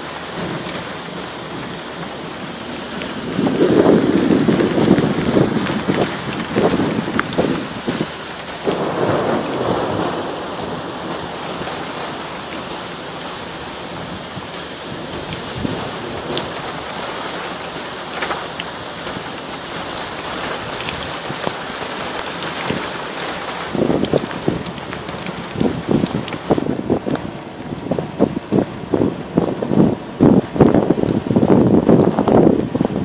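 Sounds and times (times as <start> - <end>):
heavy rain pouring: 0.0 - 33.0
raindrop ticks: 0.5 - 0.9, 2.8 - 11.9, 14.5 - 27.5.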